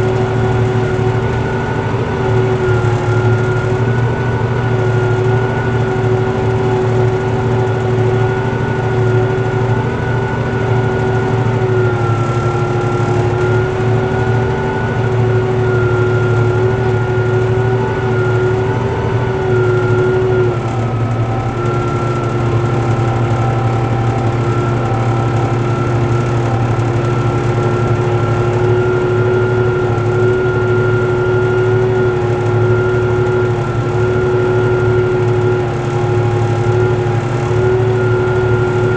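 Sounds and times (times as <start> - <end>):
steady whine: 0.0 - 38.9
tractor engine under load: 0.0 - 38.9.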